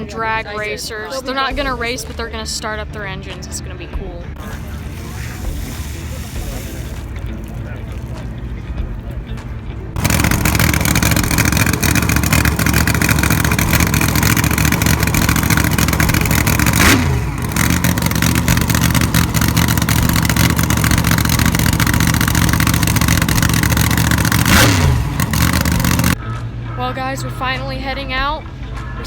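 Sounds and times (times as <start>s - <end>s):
engine revving: 4.3s - 26.5s
drag racing car engine idling: 4.4s - 26.8s.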